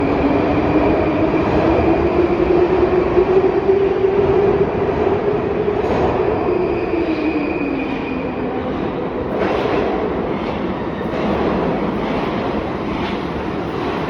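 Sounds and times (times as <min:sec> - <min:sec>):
train running rumble: 0:08.7 - 0:14.0.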